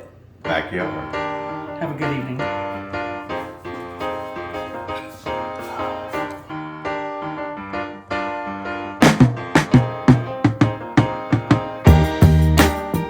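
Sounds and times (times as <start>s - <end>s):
piano chords: 0.0s - 13.0s
drum beat: 9.0s - 13.0s.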